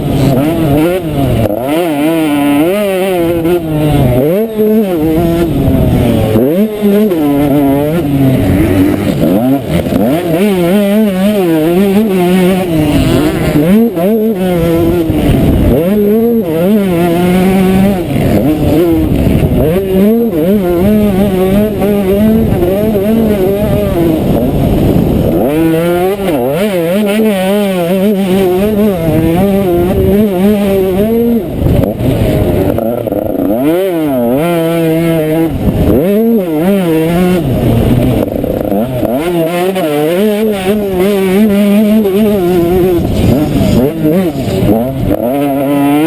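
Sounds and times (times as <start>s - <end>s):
motocross bike engine revving: 0.0s - 46.0s.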